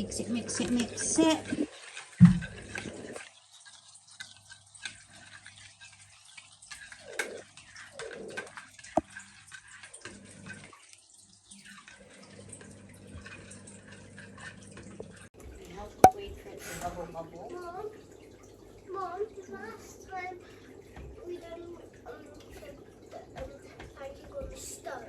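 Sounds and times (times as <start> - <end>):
batter being mixed in a bowl: 0.0 - 15.0.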